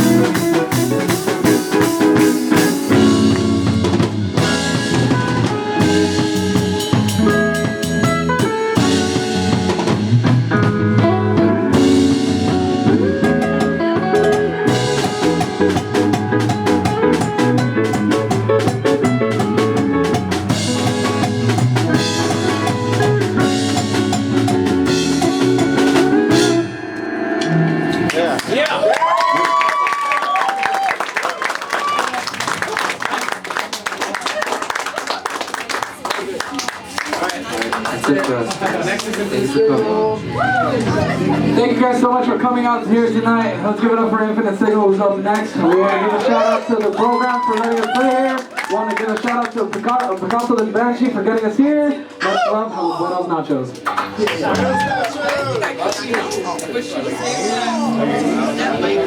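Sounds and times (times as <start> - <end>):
drum kit hit hard and fast: 0.0 - 26.7
guitar: 0.0 - 28.7, 38.3 - 46.4, 53.6 - 59.0
bass: 0.0 - 28.9, 38.4 - 45.8, 53.8 - 59.0.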